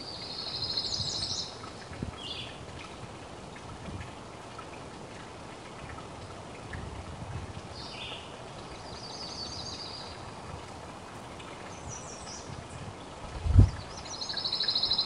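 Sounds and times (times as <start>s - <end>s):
songbirds trilling: 7.8s - 13.2s.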